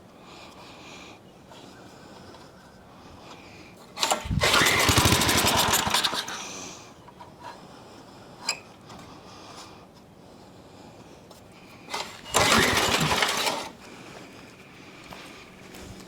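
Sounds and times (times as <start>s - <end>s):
starter cord yank: 4.0s - 6.3s, 11.9s - 13.8s
small engine sputtering: 4.0s - 6.7s, 11.9s - 13.8s.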